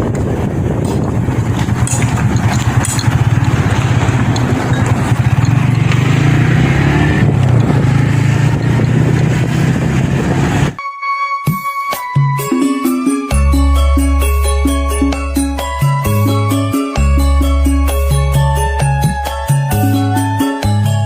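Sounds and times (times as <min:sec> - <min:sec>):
road and wind noise: 0:00.0 - 0:10.8
vehicle engine running: 0:00.0 - 0:10.8
music: 0:10.8 - 0:21.0.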